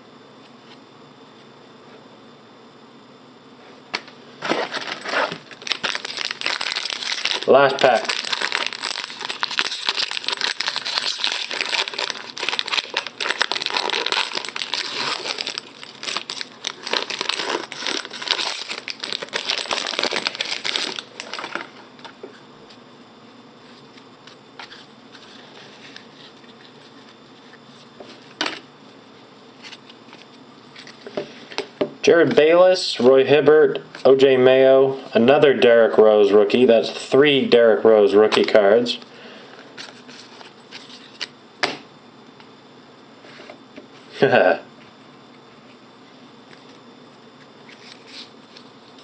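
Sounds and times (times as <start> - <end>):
cards rustling: 4.4 - 21.7
plastic wrapper crinkling and tearing: 4.5 - 21.7.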